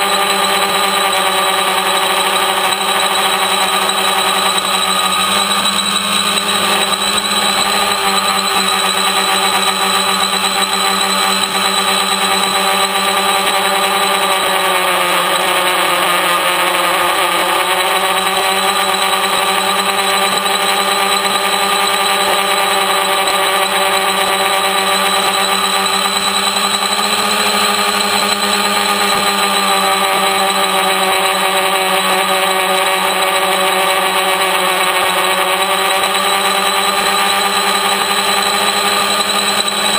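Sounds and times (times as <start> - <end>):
multirotor propellers droning: 0.0 - 39.9.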